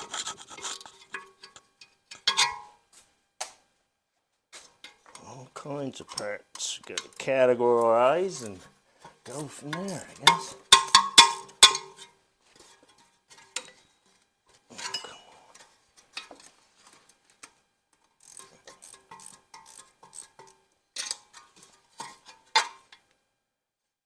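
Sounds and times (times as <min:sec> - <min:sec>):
metal engine parts clinking: 0:00.8 - 0:02.7, 0:08.3 - 0:12.1.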